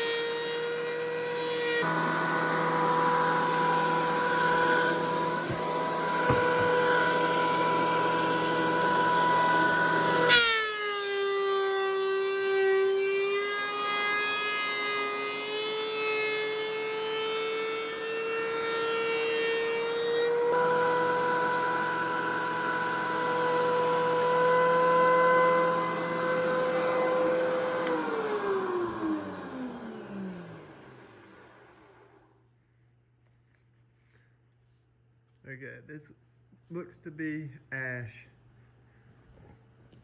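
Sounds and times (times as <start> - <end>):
planer motor whining: 0.0 - 10.6, 11.6 - 32.3
sharp knock: 5.5 - 6.8.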